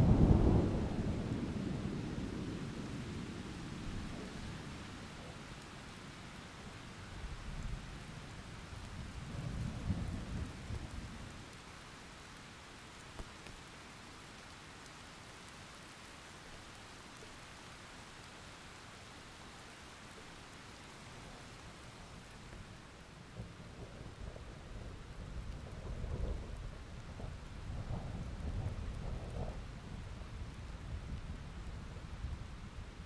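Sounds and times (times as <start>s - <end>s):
thunder rumble: 0.0s - 5.4s, 23.3s - 32.8s
steady rain: 0.0s - 33.0s.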